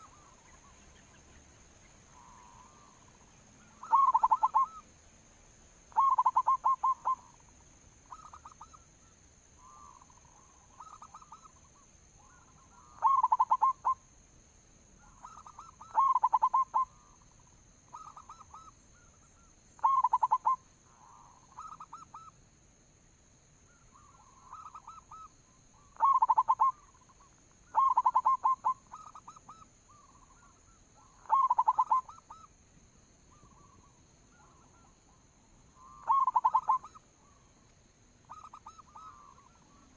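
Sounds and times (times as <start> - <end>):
distant dove cooing: 3.6 - 4.8, 5.9 - 7.4, 12.2 - 14.0, 27.7 - 32.4, 35.8 - 37.5
dove cooing: 3.6 - 4.8, 5.9 - 7.3, 12.2 - 14.0, 15.2 - 17.1, 19.8 - 22.3, 25.9 - 27.0, 27.7 - 32.4, 35.8 - 37.4, 38.3 - 39.8.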